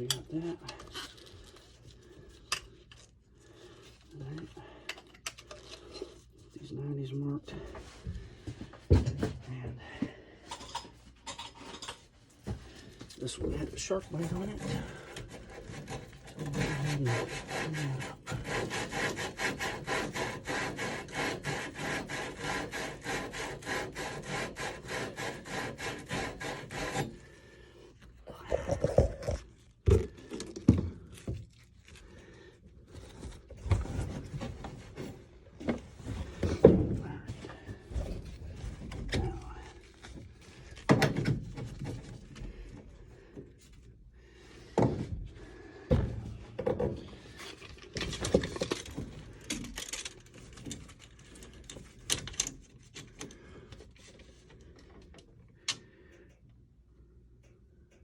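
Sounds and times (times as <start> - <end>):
scrubbing copper pipe: 12.7 - 40.9.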